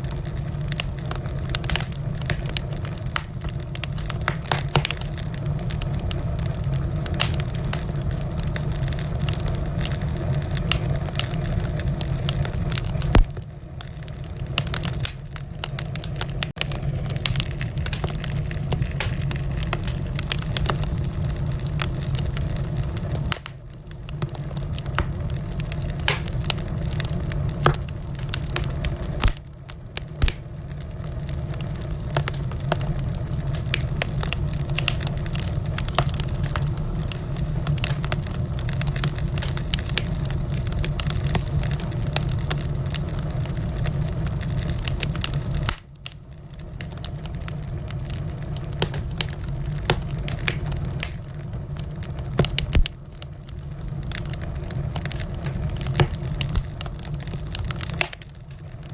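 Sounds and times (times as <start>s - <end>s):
low rumble of flames: 0.0s - 58.9s
wood fire crackling and popping: 0.0s - 58.9s.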